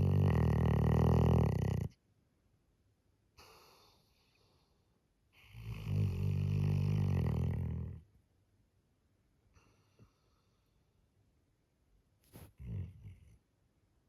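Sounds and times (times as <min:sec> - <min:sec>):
dog snoring loudly: 0:00.0 - 0:01.9, 0:05.5 - 0:08.0
dog breathing faintly: 0:12.3 - 0:13.4.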